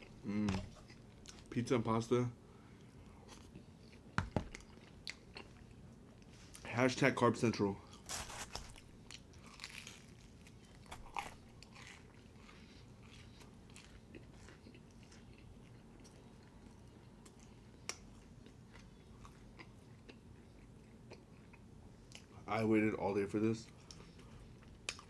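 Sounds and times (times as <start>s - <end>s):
person chewing: 3.3s - 5.8s, 7.9s - 22.4s, 23.7s - 25.0s.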